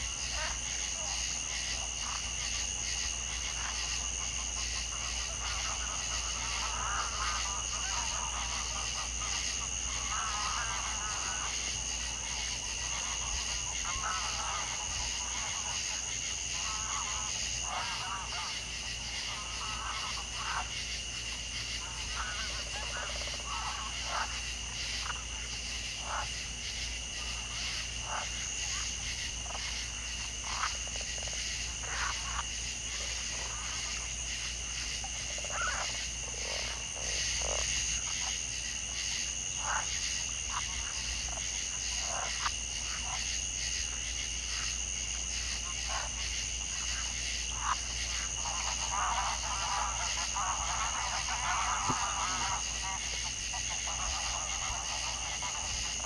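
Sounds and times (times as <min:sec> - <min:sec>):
frogs croaking: 0:00.0 - 0:56.0.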